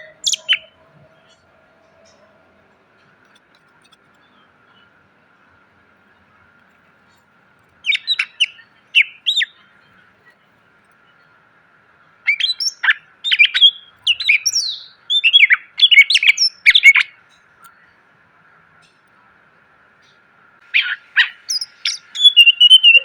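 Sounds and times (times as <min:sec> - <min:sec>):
bird singing whistles and chips: 0:00.0 - 0:01.4, 0:07.8 - 0:09.6, 0:12.3 - 0:17.1, 0:20.7 - 0:23.0.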